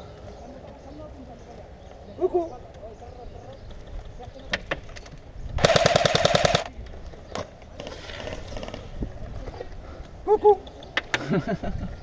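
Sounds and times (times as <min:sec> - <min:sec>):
airsoft guns firing: 0:05.6 - 0:06.7.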